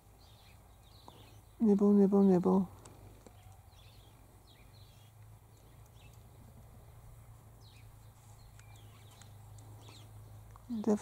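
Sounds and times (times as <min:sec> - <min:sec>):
faint bird chirps: 0:03.2 - 0:11.0.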